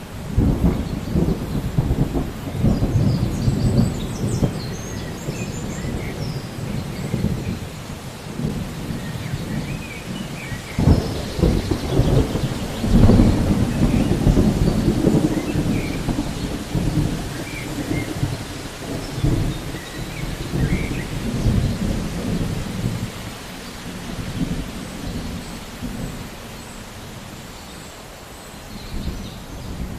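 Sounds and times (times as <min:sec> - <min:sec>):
thunder rumbling: 0:00.0 - 0:27.3
steady rain: 0:00.0 - 0:29.9
thunder crack: 0:08.4 - 0:23.1.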